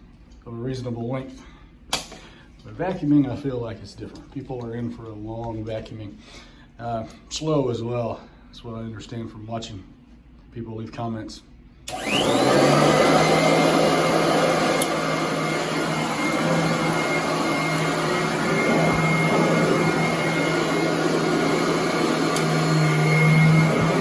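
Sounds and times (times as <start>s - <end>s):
upright vacuum cleaner running: 11.9s - 24.0s.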